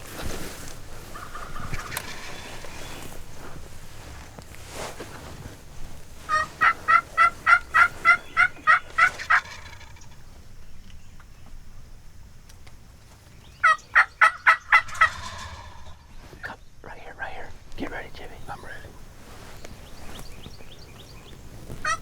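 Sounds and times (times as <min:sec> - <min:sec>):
turkeys gobbling: 0:01.0 - 0:03.6, 0:06.2 - 0:10.3, 0:13.6 - 0:16.3, 0:20.0 - 0:22.0.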